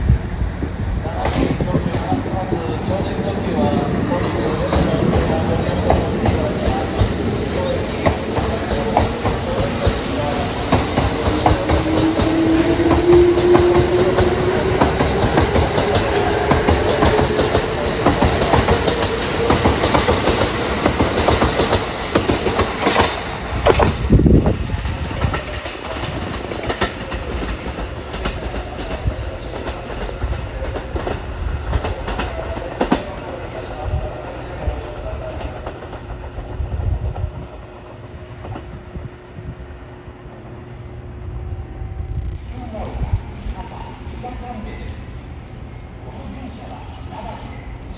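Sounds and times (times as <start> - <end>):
train motor whine: 1.0 - 26.0, 41.5 - 47.9
train wheels clattering over joints: 1.1 - 28.9.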